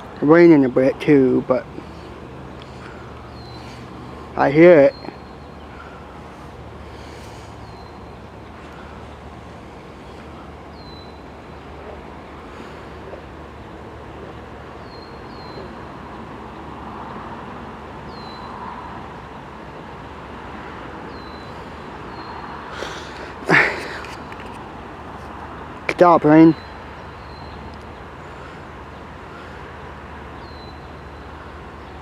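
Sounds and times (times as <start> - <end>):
distant freight train rumble: 0.9 - 25.0.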